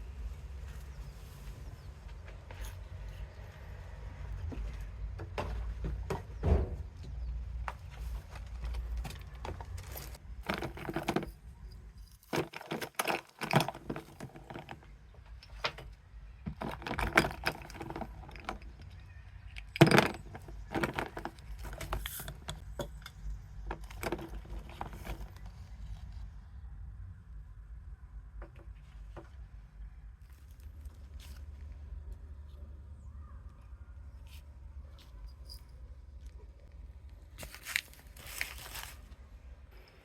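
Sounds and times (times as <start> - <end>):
small objects clicking and clinking: 16.5 - 25.4.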